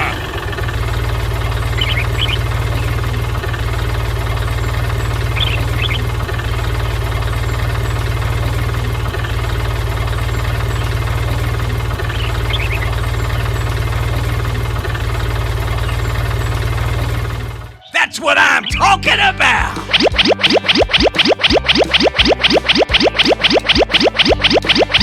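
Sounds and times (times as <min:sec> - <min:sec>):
small engine running steadily: 0:00.0 - 0:17.7
faint high chirps: 0:19.7 - 0:25.0.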